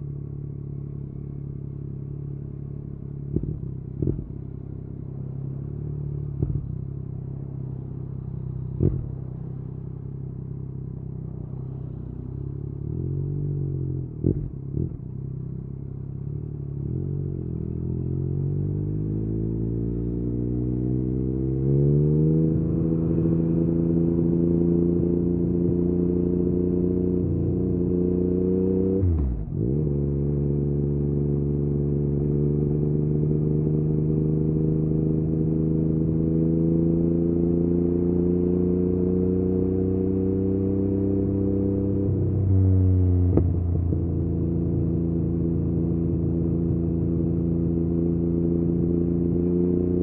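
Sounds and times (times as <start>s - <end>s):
motorcycle engine accelerating: 0.0s - 50.0s.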